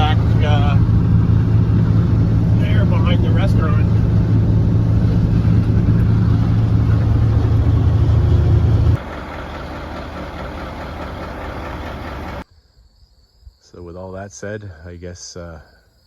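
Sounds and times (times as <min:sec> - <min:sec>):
road noise: 0:00.0 - 0:12.4
truck engine drone: 0:00.0 - 0:12.4.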